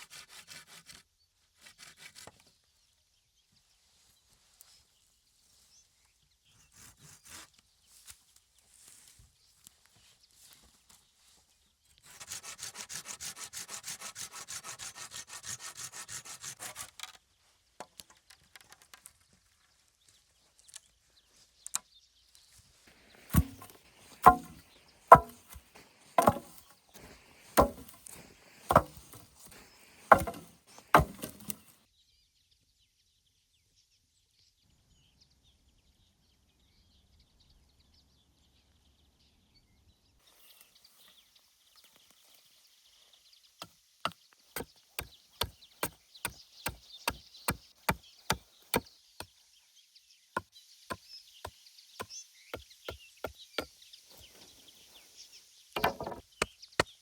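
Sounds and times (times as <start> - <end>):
hand saw cutting wood: 0.0 - 1.0, 1.6 - 2.4, 12.0 - 17.0, 23.0 - 31.8, 44.6 - 48.8
chopping blows into wood: 23.0 - 31.7, 55.8 - 56.2.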